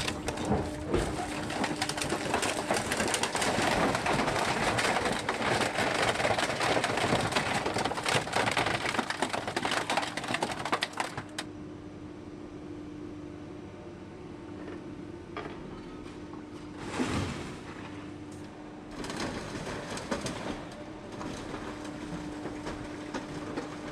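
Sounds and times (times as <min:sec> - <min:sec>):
car body being crushed: 0:00.0 - 0:11.4
machine hum: 0:00.0 - 0:23.9.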